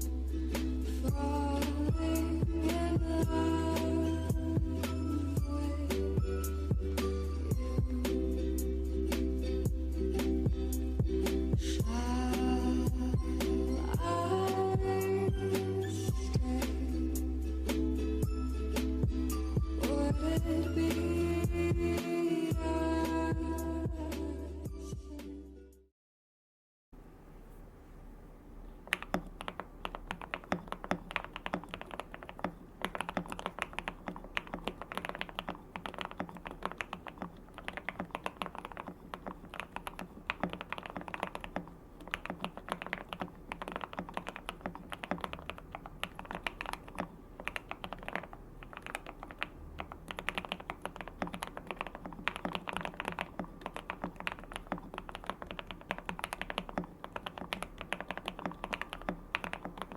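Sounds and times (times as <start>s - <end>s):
fast mechanical keyboard typing: 28.8s - 59.9s.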